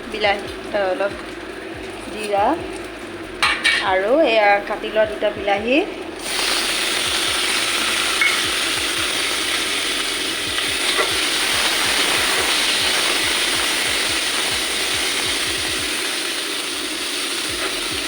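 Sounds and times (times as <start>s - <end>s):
food sizzling in hot oil: 6.2s - 18.0s.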